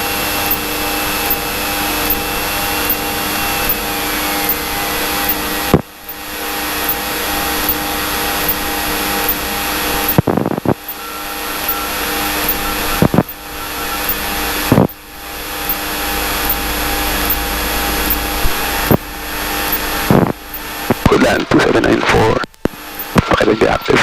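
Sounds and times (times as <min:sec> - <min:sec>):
propeller plane engine droning: 0:00.0 - 0:24.0
sharp clicks: 0:00.4 - 0:01.4, 0:02.0 - 0:03.0, 0:14.0 - 0:15.0, 0:15.6 - 0:15.8, 0:16.4 - 0:17.4, 0:18.0 - 0:19.0, 0:22.4 - 0:23.3.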